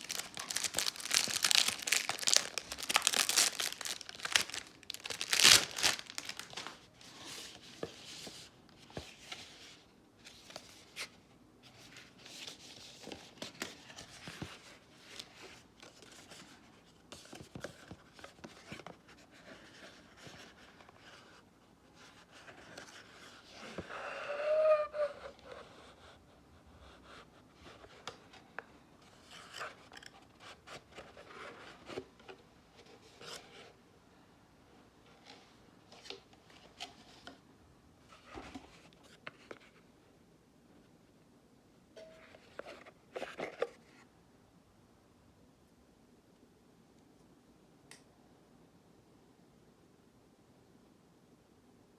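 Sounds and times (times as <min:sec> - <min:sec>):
cardboard and paper rustling: 0:00.0 - 0:11.2.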